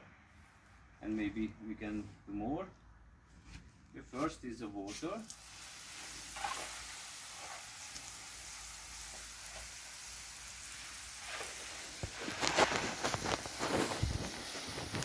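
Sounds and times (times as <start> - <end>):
water spraying onto a wall: 4.9 - 15.0.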